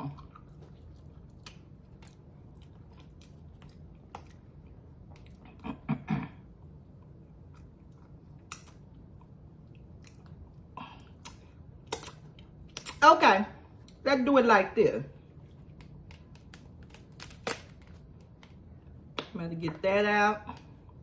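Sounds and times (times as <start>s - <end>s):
person chewing: 0.0s - 5.9s, 6.6s - 13.0s.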